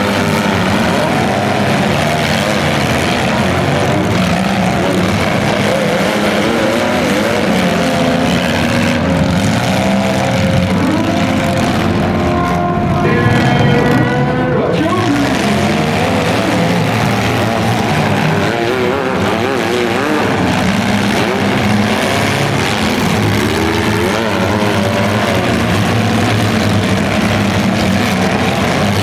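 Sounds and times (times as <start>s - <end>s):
car engines revving: 0.0s - 29.0s
car horn: 10.7s - 29.0s.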